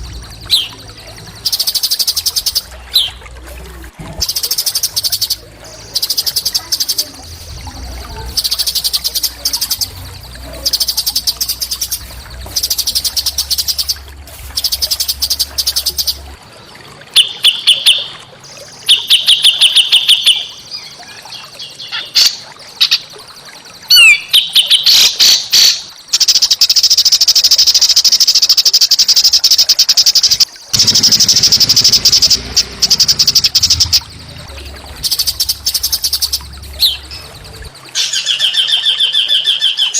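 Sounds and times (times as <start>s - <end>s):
songbird chattering trills: 0.0s - 3.4s, 4.2s - 16.3s, 29.8s - 39.9s
bird whistled phrases: 23.9s - 25.8s.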